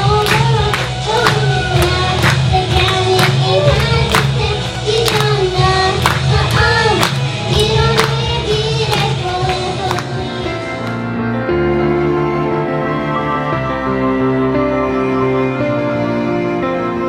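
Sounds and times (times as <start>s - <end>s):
song with sung vocals over beat: 0.0s - 11.4s.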